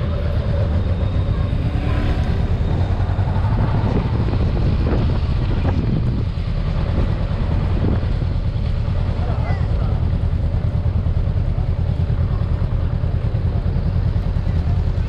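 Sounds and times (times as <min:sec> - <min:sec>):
wind buffeting microphone: 0:00.0 - 0:09.2
low engine rumble: 0:00.0 - 0:15.0.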